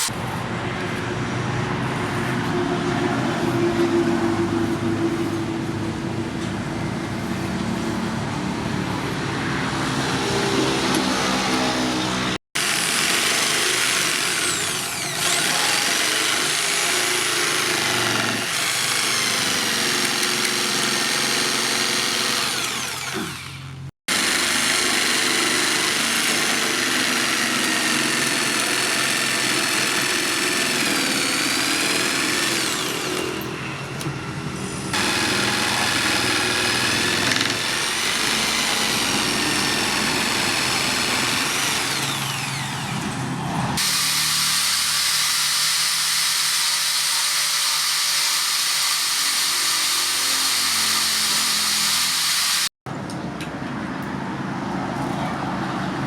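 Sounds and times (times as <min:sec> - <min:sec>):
power tool motor whining: 0:10.1 - 0:34.1, 0:34.9 - 0:52.7.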